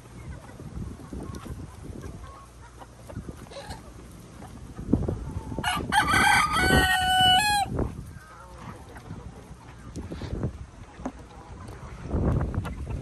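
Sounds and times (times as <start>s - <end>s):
rooster crowing: 5.6s - 7.8s.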